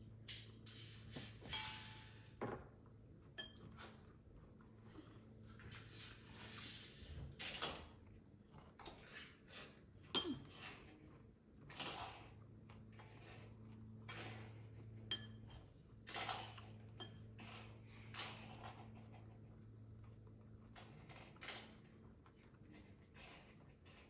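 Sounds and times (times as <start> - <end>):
utensils clinking on plate: 3.4 - 4.0, 10.1 - 10.8, 15.1 - 18.6.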